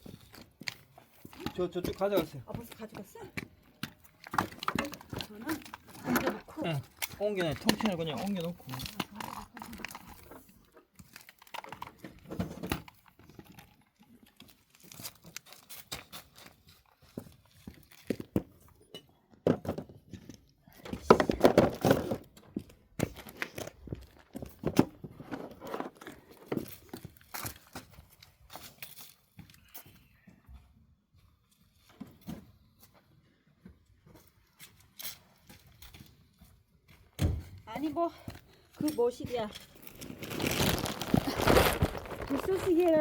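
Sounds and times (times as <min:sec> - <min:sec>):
wooden knocks and clatters: 0:01.3 - 0:10.0, 0:19.4 - 0:20.3, 0:20.9 - 0:22.6
dry bark scraping and crackling: 0:04.2 - 0:11.6, 0:39.0 - 0:43.0.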